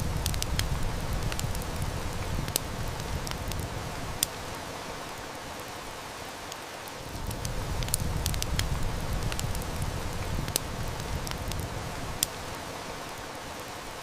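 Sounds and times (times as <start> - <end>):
distant thunder rumble: 0.0 - 4.8, 7.1 - 13.1
heavy rain: 0.0 - 14.0
wood fire crackling: 0.0 - 14.0.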